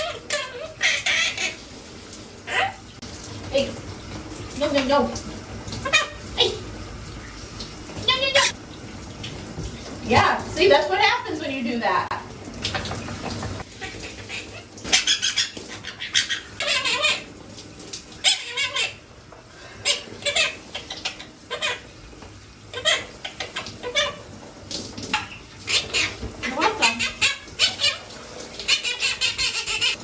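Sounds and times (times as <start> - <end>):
parrot calls and chattering: 0.0 - 1.6, 2.4 - 2.9, 5.8 - 6.6, 8.1 - 8.6, 13.1 - 17.3, 18.2 - 19.0, 19.7 - 22.0, 22.7 - 24.3, 25.1 - 30.0.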